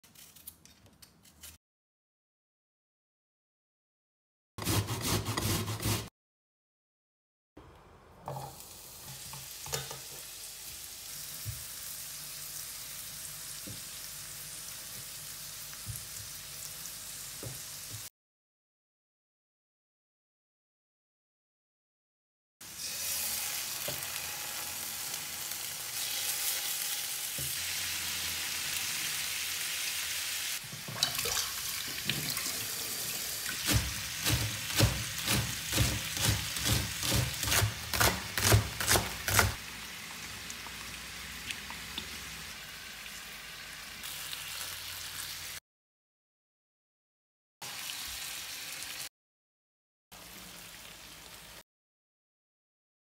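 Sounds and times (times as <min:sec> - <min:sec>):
knife chopping on plastic board: 0:33.6 - 0:39.6
chicken frying in oil: 0:38.5 - 0:45.6.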